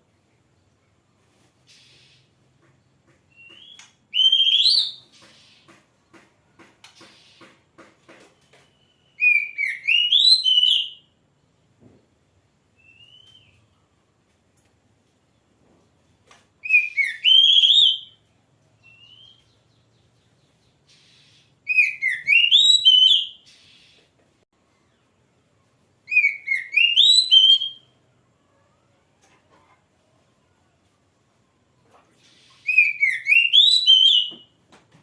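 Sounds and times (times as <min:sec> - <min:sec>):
bird singing whistled phrases: 0:03.3 - 0:05.0, 0:08.4 - 0:11.0, 0:12.8 - 0:13.7, 0:16.6 - 0:18.2, 0:18.8 - 0:19.5, 0:21.7 - 0:23.6, 0:26.1 - 0:28.0, 0:32.6 - 0:34.5.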